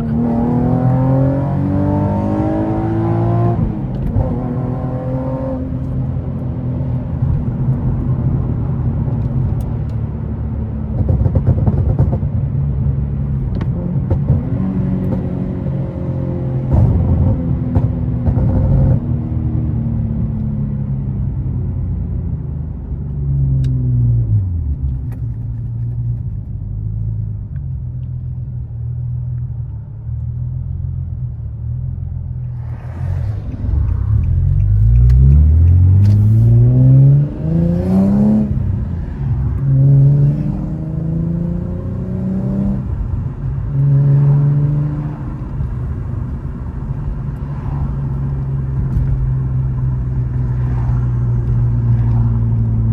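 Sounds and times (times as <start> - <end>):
car engine accelerating: 0.0 - 21.0, 32.0 - 52.9.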